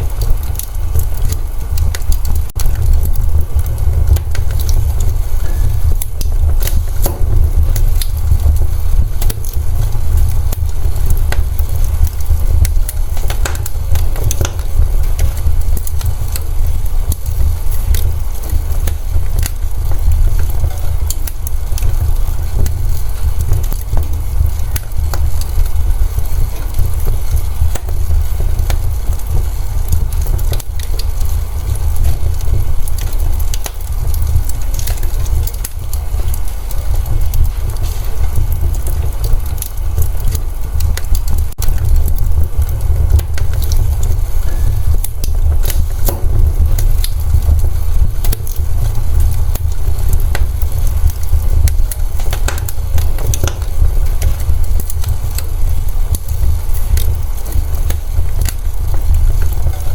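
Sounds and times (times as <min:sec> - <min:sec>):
fire low rumble: 0:00.0 - 0:59.9
wood fire crackling: 0:00.0 - 0:59.9.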